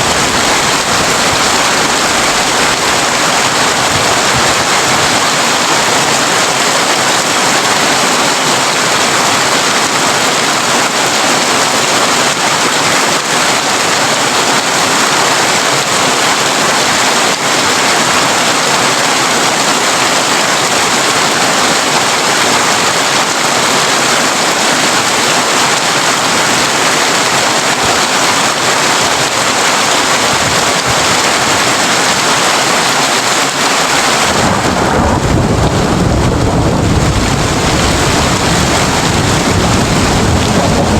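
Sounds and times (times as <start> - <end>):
heavy rain on a tin roof: 0.0 - 40.9
low rumble of thunder: 34.3 - 40.9.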